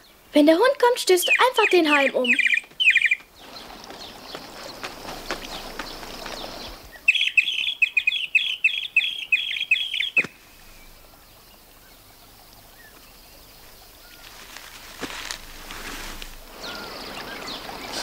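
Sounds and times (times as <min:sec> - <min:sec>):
cartoon bird chirping: 0:01.2 - 0:03.2.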